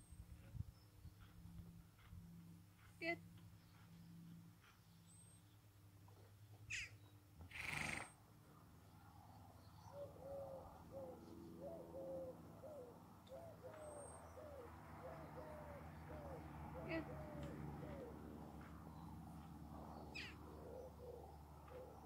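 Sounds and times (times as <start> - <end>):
bird low arched notes: 9.3 - 22.0.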